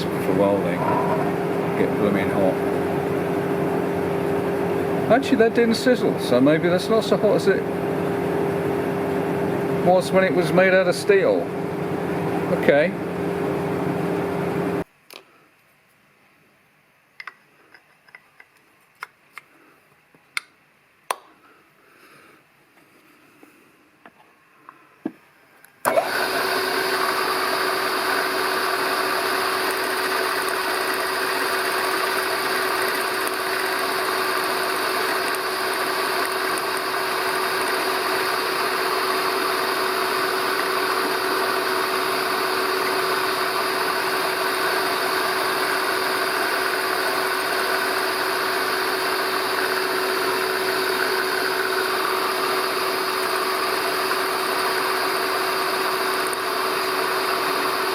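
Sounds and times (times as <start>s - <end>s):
electric motor humming: 0.0s - 5.6s, 25.9s - 57.9s.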